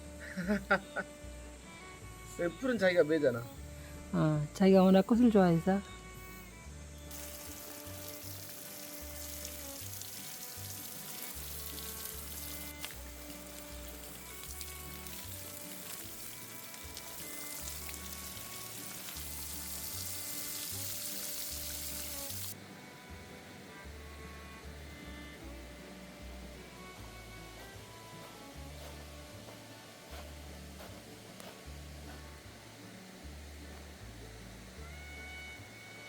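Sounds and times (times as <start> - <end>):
gentle music with bass: 0.0 - 36.0
water hissing: 7.1 - 22.6.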